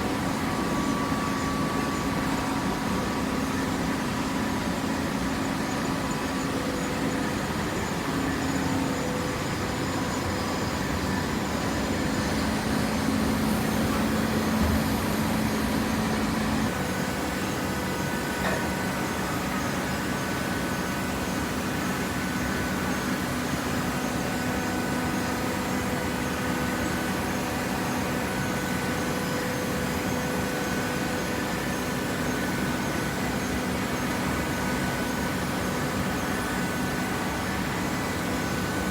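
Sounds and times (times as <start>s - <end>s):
mechanical background noise: 10.8s - 20.2s
hydraulic press motor hum: 11.8s - 16.7s.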